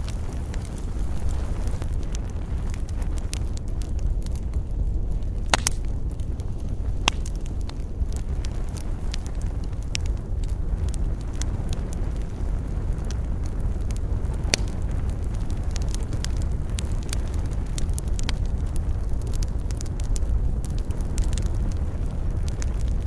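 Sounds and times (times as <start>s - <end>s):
low rumble: 0.0s - 23.0s
wood fire crackling: 0.0s - 23.0s
sharp pops: 5.5s - 5.8s.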